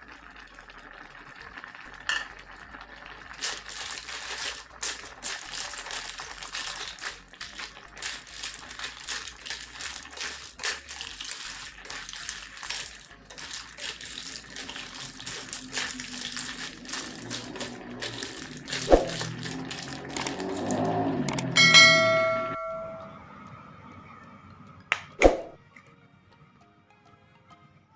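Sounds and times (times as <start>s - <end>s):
clam shells clattering in a metal pan: 2.1s - 2.3s, 3.3s - 22.5s.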